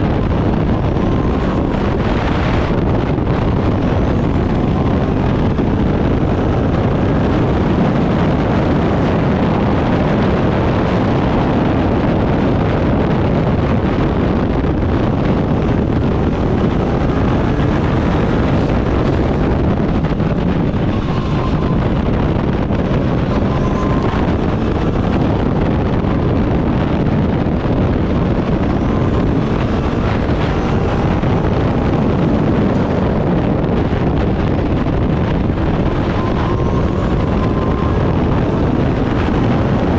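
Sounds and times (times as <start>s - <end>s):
race car engine running hard: 0.0s - 39.9s
wind noise on microphone: 0.0s - 39.9s.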